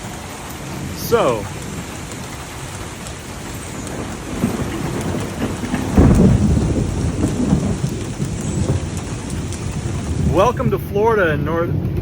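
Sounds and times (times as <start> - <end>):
steady rain: 0.0 - 12.0
thunder rumbling: 0.0 - 12.0.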